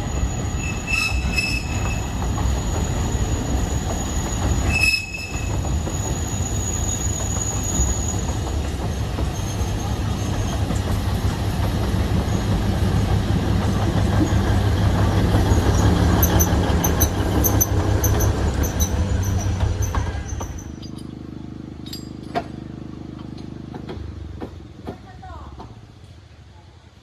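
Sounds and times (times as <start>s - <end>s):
train wheel squeals: 0.0s - 11.2s, 14.1s - 21.2s
diesel locomotive idling: 0.0s - 26.4s
train rumbling: 0.0s - 27.0s.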